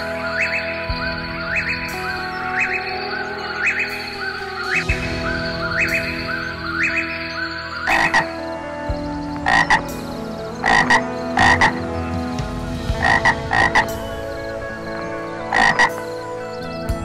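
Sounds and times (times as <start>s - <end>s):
frog croaking: 0.0s - 1.8s, 2.5s - 8.6s, 9.4s - 12.0s, 12.9s - 14.0s, 15.4s - 16.1s.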